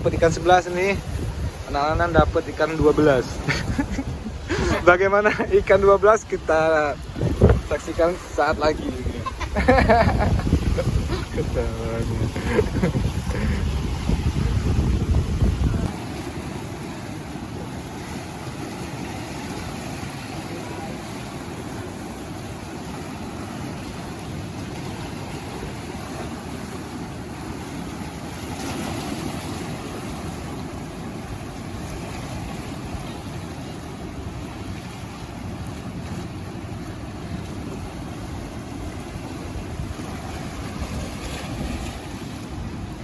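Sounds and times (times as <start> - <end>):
wind buffeting microphone: 0.0 - 17.4
outdoor wind: 0.0 - 43.0
water noise: 0.0 - 43.0.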